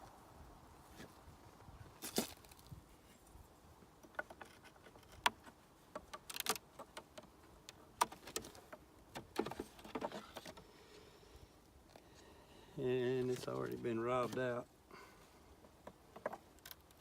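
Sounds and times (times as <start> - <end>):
beehive parts knocking and clicking: 4.0 - 10.6, 15.6 - 17.0.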